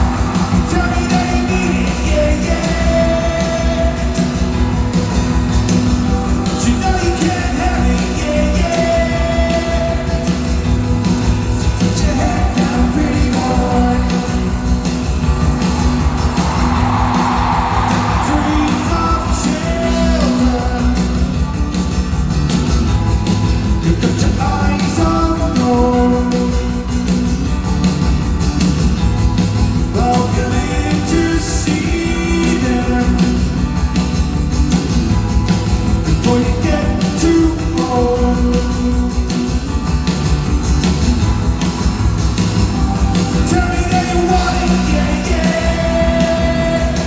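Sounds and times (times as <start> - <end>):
person singing: 0.0 - 4.6, 11.8 - 14.7, 17.9 - 21.4, 23.9 - 26.8, 30.0 - 33.7, 36.1 - 39.4, 43.2 - 47.0
live rock band playing: 0.0 - 47.0.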